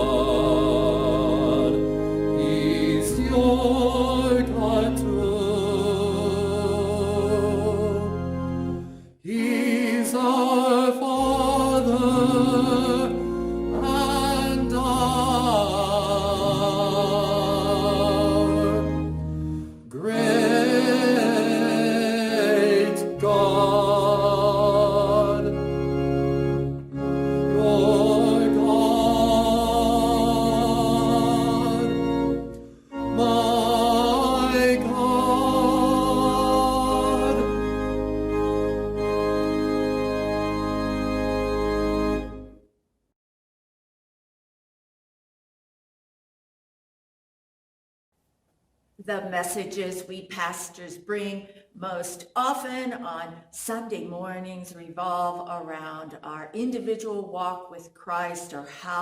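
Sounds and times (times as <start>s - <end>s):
person singing with vibrato: 0.0s - 8.3s, 9.2s - 19.1s, 19.9s - 26.0s, 27.4s - 39.1s
sustained organ chords: 0.0s - 42.6s.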